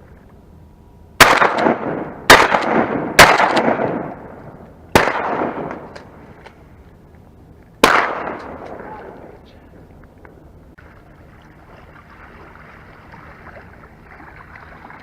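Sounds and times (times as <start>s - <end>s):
shotgun blasts echoing: 1.2s - 6.1s, 7.8s - 9.2s.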